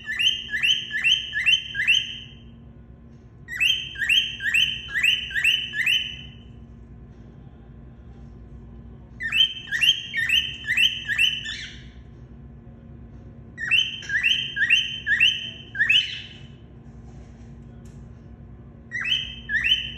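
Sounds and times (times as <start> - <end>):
cockatiel whistling calls: 0.0 - 2.4, 3.5 - 6.4, 9.2 - 11.9, 13.6 - 16.5, 18.9 - 19.9
faint steady hum: 0.0 - 19.9.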